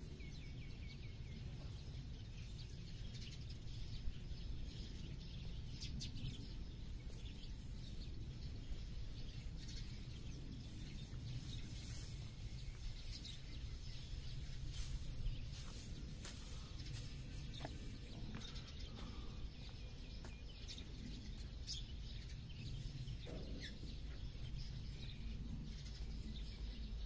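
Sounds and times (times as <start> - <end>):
low outdoor rumble: 0.0 - 27.0
small birds chirping: 0.0 - 27.0.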